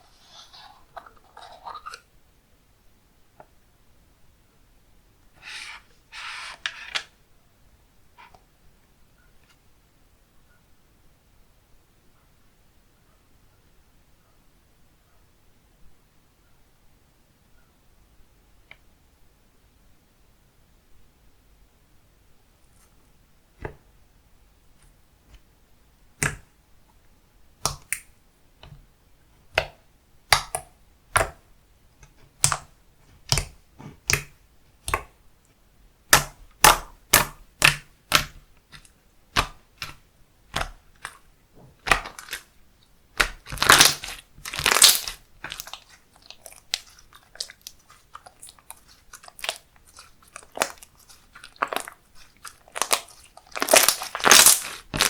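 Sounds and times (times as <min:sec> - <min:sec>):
slime popping and crackling: 0:36.1 - 0:41.2, 0:41.8 - 0:55.0.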